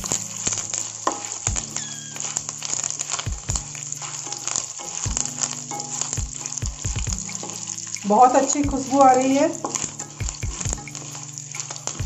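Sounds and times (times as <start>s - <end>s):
sizzling and crackling in oil: 0.0s - 12.0s
spatula knocking pan: 0.0s - 12.0s.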